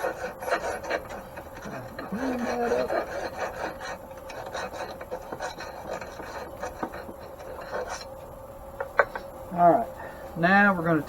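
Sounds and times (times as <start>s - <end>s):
hand file stroking metal: 0.0s - 8.1s.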